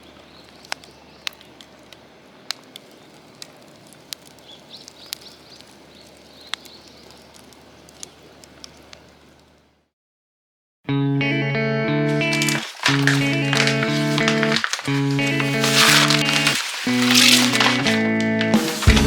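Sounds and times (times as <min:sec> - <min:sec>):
wood fire crackling: 0:00.0 - 0:09.8, 0:12.1 - 0:19.0.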